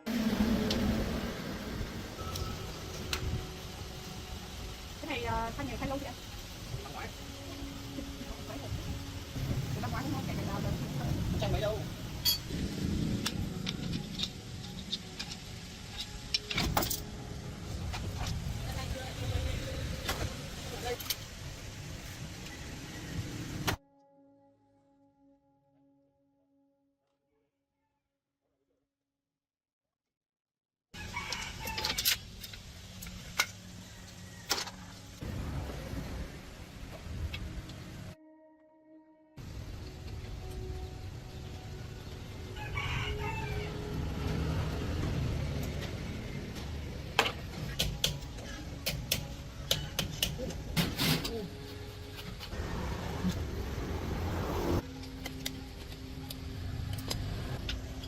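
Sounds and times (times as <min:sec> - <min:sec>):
vehicle engine rumbling: 0:00.0 - 0:23.8, 0:39.4 - 0:42.6, 0:43.4 - 0:58.0.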